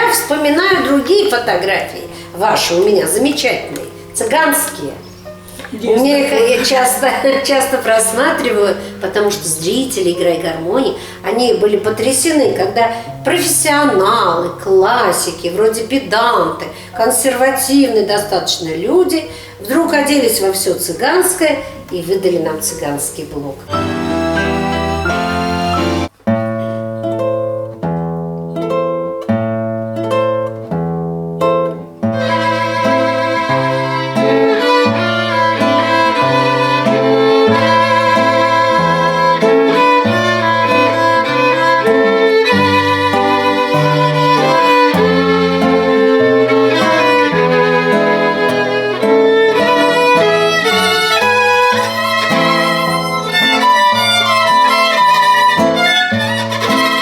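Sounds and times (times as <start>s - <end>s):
bass and chordal accompaniment: 23.7s - 26.2s
violin melody: 23.7s - 26.2s, 32.0s - 57.0s.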